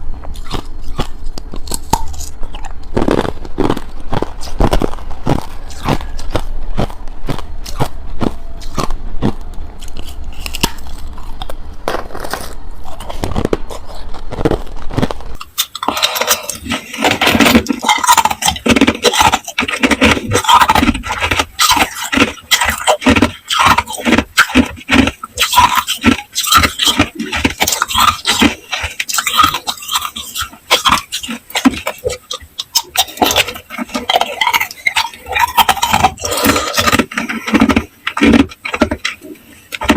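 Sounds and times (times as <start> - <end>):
low hum: 0.0 - 21.6
ice cubes being chewed: 0.0 - 39.9.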